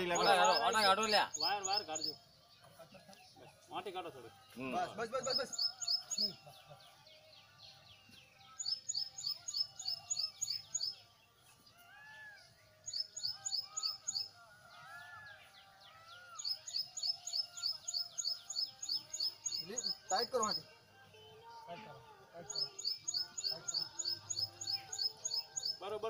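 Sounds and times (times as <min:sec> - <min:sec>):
bird high-pitched chirps: 0:05.2 - 0:06.4, 0:08.5 - 0:11.0, 0:11.7 - 0:14.4, 0:15.0 - 0:20.7, 0:22.5 - 0:25.8.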